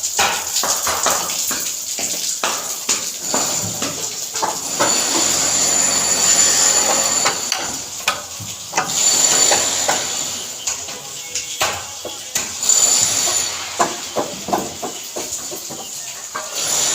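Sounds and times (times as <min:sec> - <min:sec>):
drops ticking and knocking: 0:00.0 - 0:16.9
heavy rain hissing: 0:00.0 - 0:16.9.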